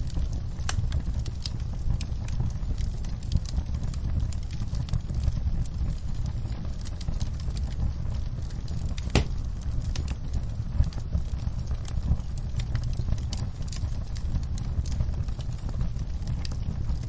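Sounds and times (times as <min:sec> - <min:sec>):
fire crackling: 0:00.0 - 0:17.0
fire flames rumbling: 0:00.0 - 0:17.0
sharp pop of fire: 0:09.0 - 0:09.5.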